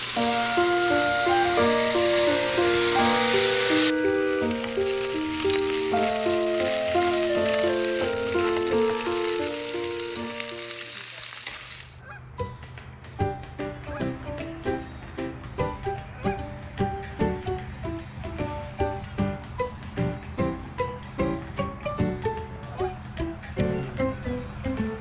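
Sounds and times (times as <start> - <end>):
plucked melody background music: 0.0 - 10.8, 12.1 - 25.0
food sizzling on grill plate: 0.0 - 12.0.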